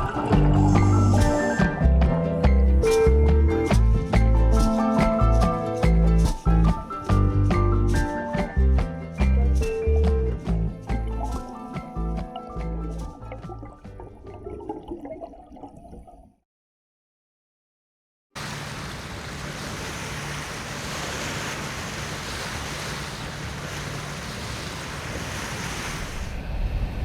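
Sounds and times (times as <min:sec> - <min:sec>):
water rushing: 0:00.0 - 0:07.3, 0:18.4 - 0:26.6
background music: 0:00.0 - 0:14.3.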